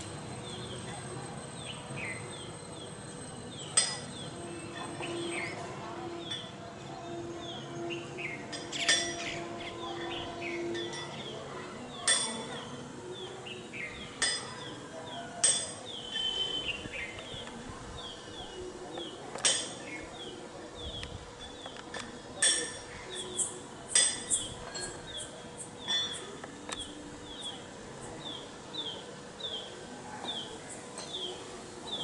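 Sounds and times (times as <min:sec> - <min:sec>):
birds chirping: 0:00.0 - 0:32.0
sharp clinking knocks: 0:08.5 - 0:09.3, 0:23.9 - 0:25.1.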